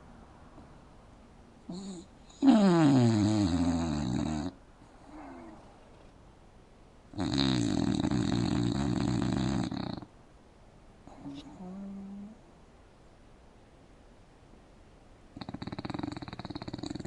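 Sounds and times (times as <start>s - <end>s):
dog snoring: 1.7s - 5.7s, 7.1s - 10.1s, 11.1s - 12.4s, 15.4s - 17.0s.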